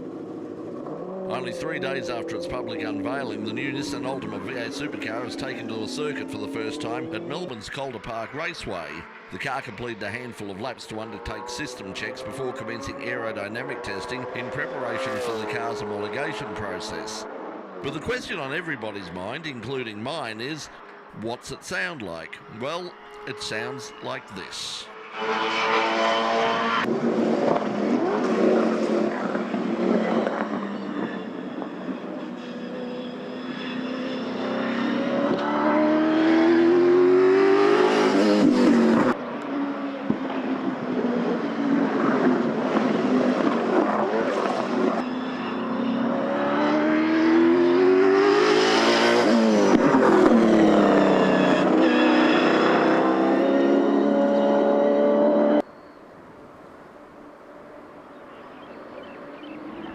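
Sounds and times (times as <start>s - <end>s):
race car engine passing by: 11.0s - 19.9s, 24.9s - 55.6s.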